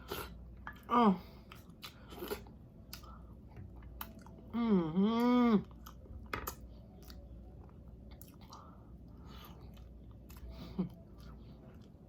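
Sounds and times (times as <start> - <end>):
person humming mmm: 4.5 - 5.9.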